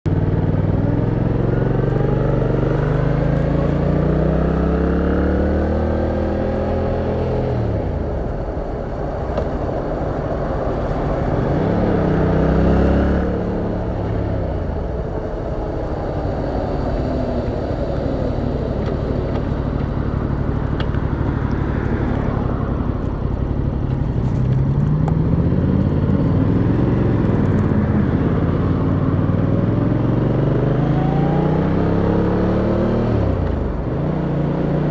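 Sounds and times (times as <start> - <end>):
motorcycle engine revving: 0.1 - 34.9
road noise: 0.1 - 34.9
gear changes: 0.8 - 29.9.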